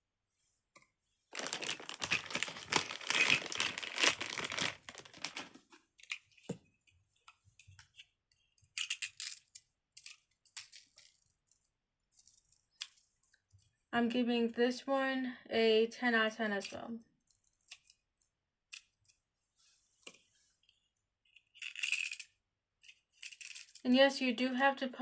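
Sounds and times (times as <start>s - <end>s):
plastic wrapping crinkling: 1.3s - 5.8s.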